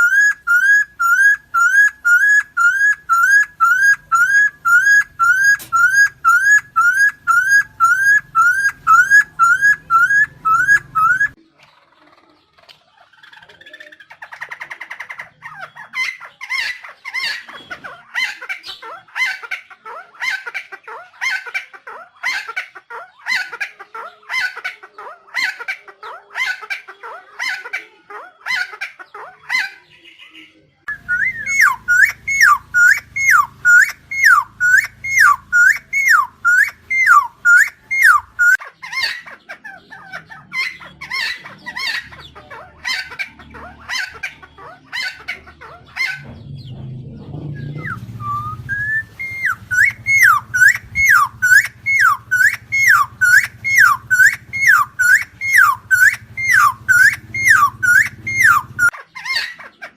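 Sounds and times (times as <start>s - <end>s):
bird calling clear falling notes: 0.0s - 11.4s, 30.9s - 38.6s, 47.4s - 59.0s
bird calling harsh notes: 0.0s - 11.4s, 30.9s - 46.7s, 47.6s - 59.6s
low hum: 46.2s - 58.9s.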